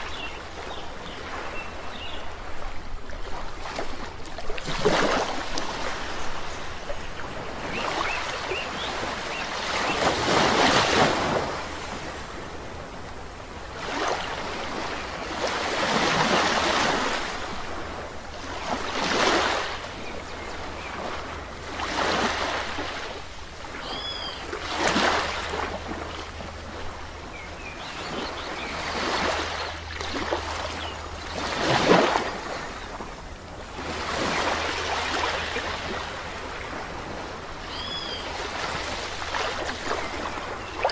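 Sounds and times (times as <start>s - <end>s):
waves washing on sandy shore: 0.0s - 40.9s
faint bird chirps: 23.8s - 24.4s, 37.7s - 38.3s.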